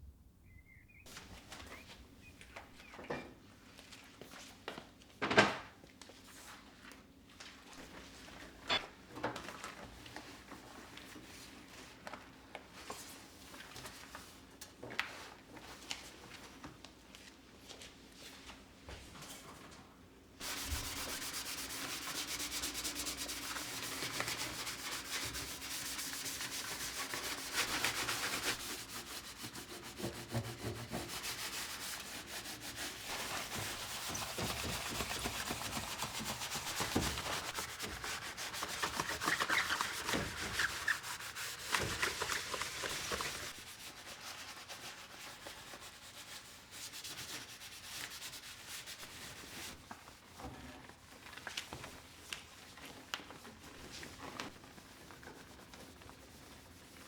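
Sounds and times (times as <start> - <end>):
scrubbing hard surface: 20.4 - 45.2.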